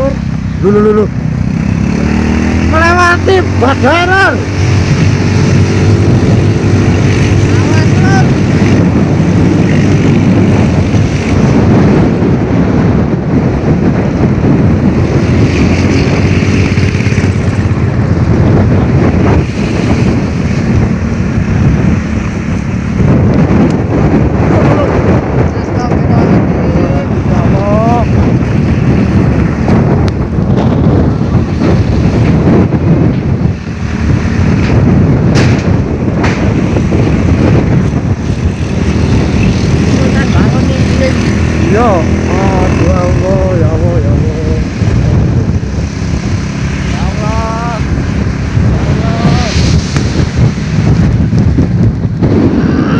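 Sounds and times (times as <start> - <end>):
wind buffeting microphone: 0.0 - 52.9
sharp knocks and clatters: 34.6 - 36.5.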